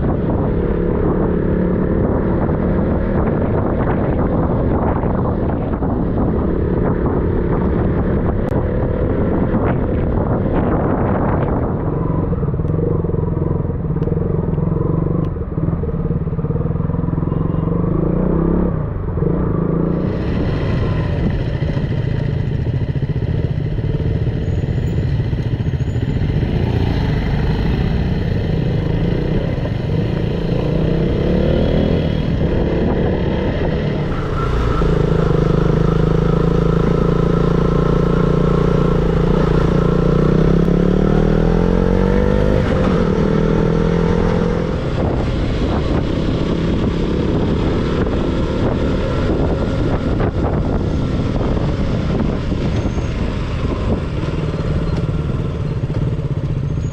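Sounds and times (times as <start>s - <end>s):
motorcycle engine running: 19.9s - 56.9s.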